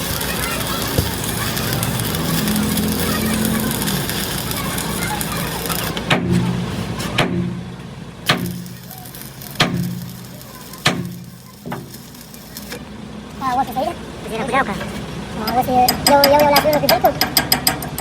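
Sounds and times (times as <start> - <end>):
machine hum: 0.0 - 18.0
sharp strikes on heavy metal: 6.1 - 6.6, 7.2 - 8.9, 9.6 - 10.2, 10.8 - 12.0.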